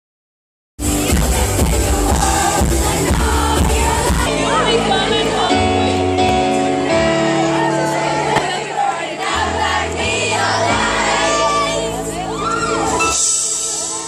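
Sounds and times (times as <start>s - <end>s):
pounding bass beat: 0.8s - 4.4s.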